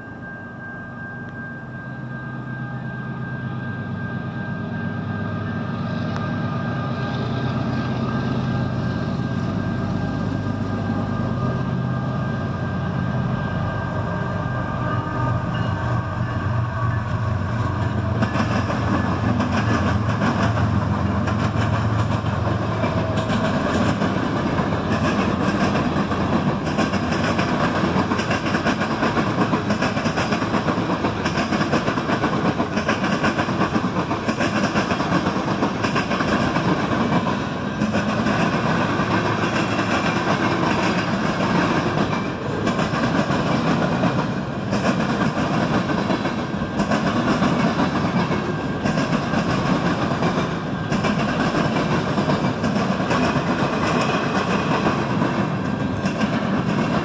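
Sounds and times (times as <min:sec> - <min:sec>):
diesel locomotive engines: 0:00.0 - 0:57.0
train wheels clattering over rails: 0:15.5 - 0:57.0.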